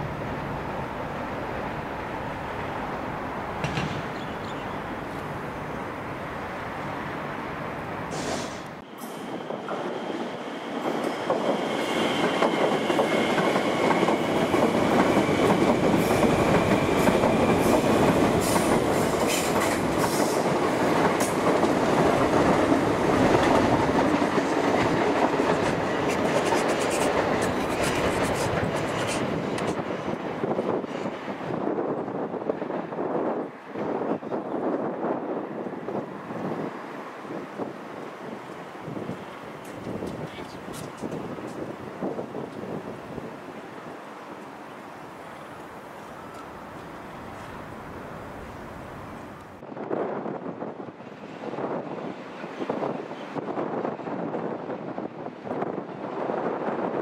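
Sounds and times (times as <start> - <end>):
electric train passing: 0.0 - 57.0.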